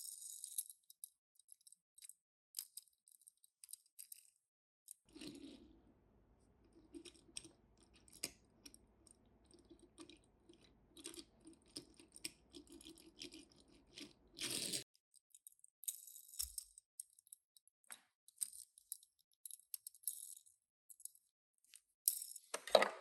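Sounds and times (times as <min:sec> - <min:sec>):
toy cars clicking and rattling: 0:18.3 - 0:22.7.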